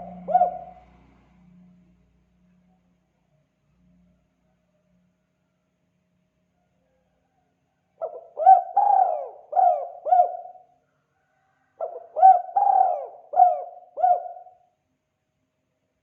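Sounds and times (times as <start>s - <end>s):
dove cooing: 0.0s - 1.0s, 8.0s - 10.7s, 11.8s - 14.6s.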